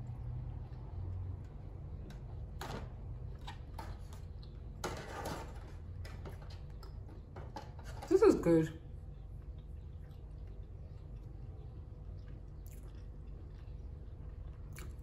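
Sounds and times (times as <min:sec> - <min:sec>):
chewing toasted bread: 0:00.0 - 0:04.8, 0:08.8 - 0:15.0
low steady hum: 0:00.0 - 0:15.0.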